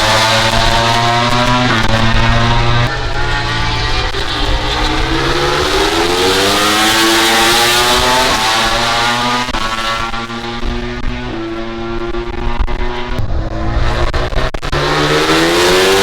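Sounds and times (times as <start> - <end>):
motorcycle engine accelerating hard: 0.0 - 16.0
second engine steady pitch: 0.0 - 16.0.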